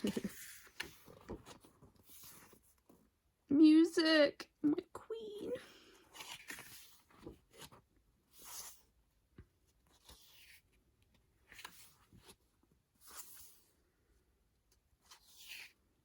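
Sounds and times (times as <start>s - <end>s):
paper and card rustling: 0.0s - 3.1s, 6.0s - 13.8s, 14.8s - 15.9s.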